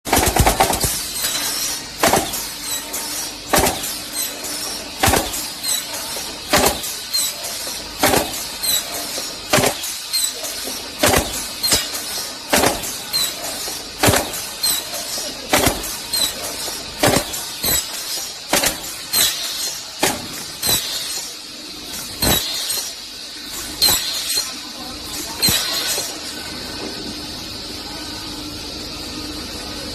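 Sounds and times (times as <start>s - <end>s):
machine sharp knocks: 2.0s - 2.6s, 3.4s - 4.1s, 5.0s - 5.5s, 6.5s - 6.9s, 8.0s - 8.8s, 9.5s - 10.0s, 11.0s - 13.4s, 14.0s - 14.8s, 17.0s - 19.4s.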